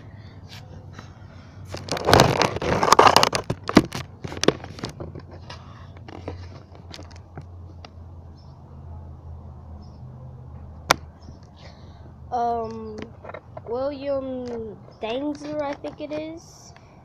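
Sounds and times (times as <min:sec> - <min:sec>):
rustling and scraping: 0:00.5 - 0:08.0, 0:12.5 - 0:16.6.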